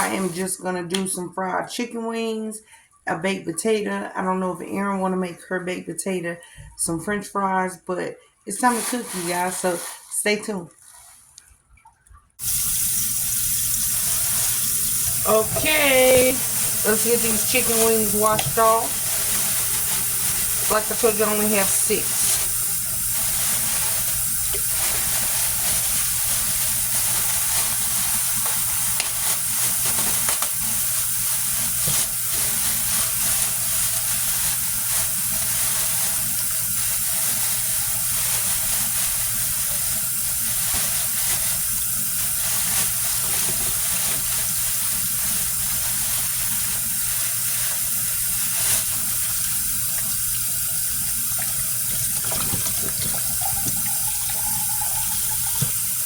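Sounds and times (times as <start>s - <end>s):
faucet running into sink: 12.4s - 56.0s.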